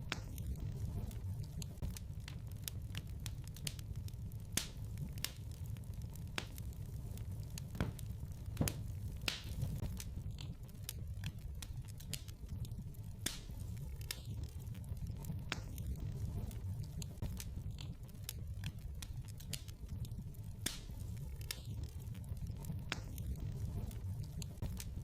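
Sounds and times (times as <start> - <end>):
logs popping and snapping: 0.0 - 25.0
low rumble of flames: 0.0 - 25.0.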